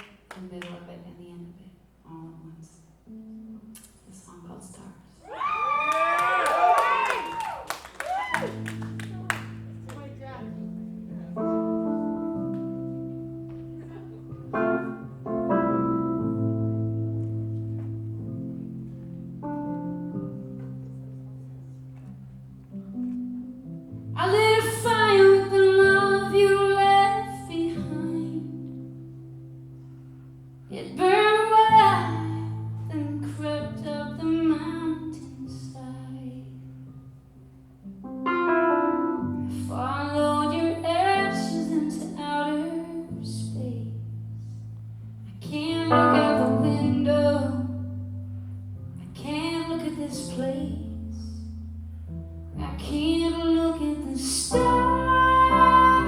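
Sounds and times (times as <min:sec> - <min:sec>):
woman singing a slow ballad: 0:24.2 - 0:28.8, 0:30.7 - 0:36.7, 0:39.4 - 0:44.2, 0:45.3 - 0:48.1, 0:49.0 - 0:51.5, 0:52.6 - 0:56.0.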